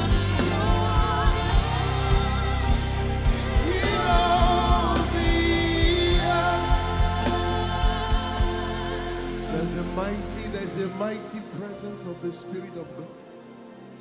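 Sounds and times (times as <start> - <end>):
steady drum beat: 0.0 - 8.8
sustained bass: 0.0 - 10.7
wordless singing: 0.0 - 13.4.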